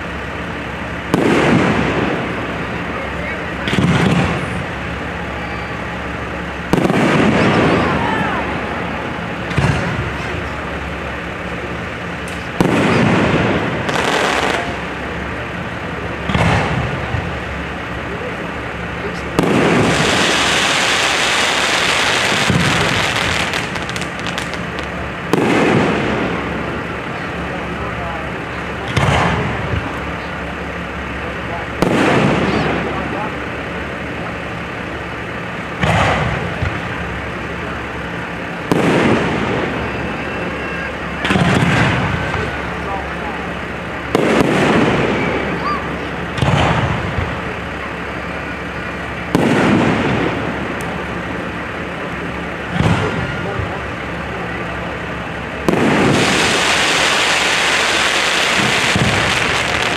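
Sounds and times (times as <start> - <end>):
firework bursts: 0.0 - 59.9
rumble and crackle: 0.0 - 59.9
firework shells bursting: 9.1 - 15.6, 19.1 - 26.9, 55.3 - 59.9.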